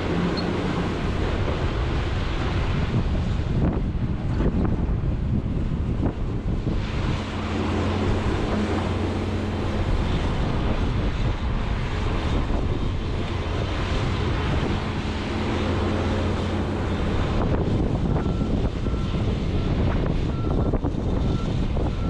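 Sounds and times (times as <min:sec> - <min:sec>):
excavator diesel engine running: 0:00.0 - 0:02.5, 0:06.6 - 0:11.8, 0:13.2 - 0:22.0.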